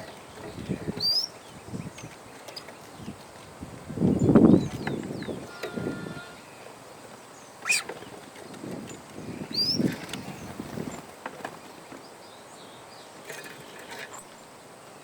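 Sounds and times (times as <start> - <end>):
rising bird chirp: 7.5 - 8.0, 9.2 - 10.6.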